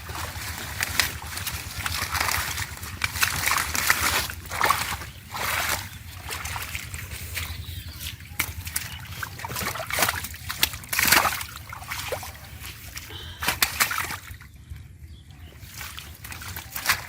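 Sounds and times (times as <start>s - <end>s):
water trickling: 0.0s - 14.4s
low rumble: 0.0s - 16.8s
river water splashing by hand: 0.0s - 17.0s.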